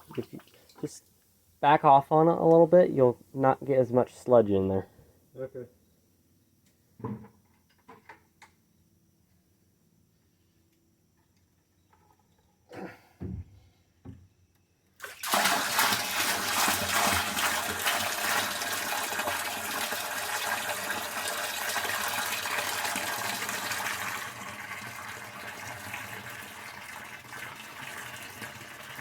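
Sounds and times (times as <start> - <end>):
liquid pouring into tank: 15.0 - 29.0.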